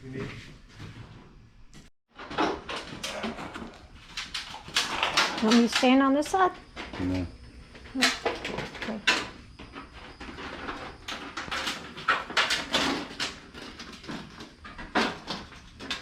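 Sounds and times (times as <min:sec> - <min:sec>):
knocks clicks and scrapes: 0:02.2 - 0:06.1.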